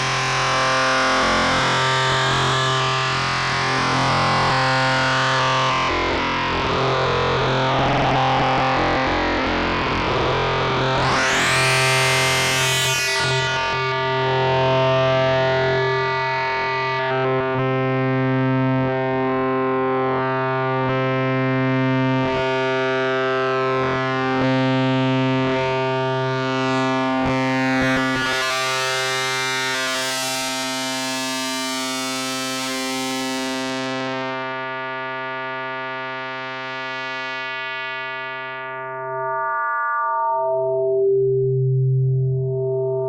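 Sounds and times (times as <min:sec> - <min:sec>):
synthesizer drone: 0:38.4 - 0:43.0.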